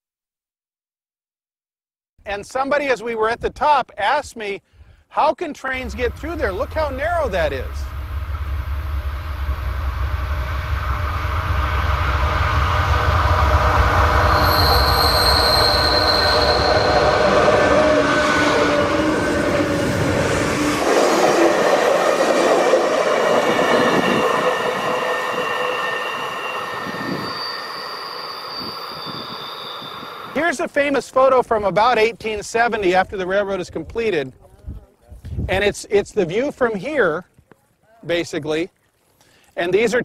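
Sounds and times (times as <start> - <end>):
passing train rumble: 5.8 - 30.7
train wheels squealing: 10.9 - 19.2, 23.2 - 30.5.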